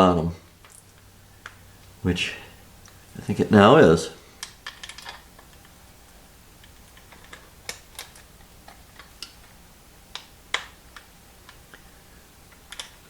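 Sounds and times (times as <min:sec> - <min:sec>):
small metal and plastic parts clicking: 0:04.4 - 0:05.7, 0:06.6 - 0:09.5, 0:12.5 - 0:13.0.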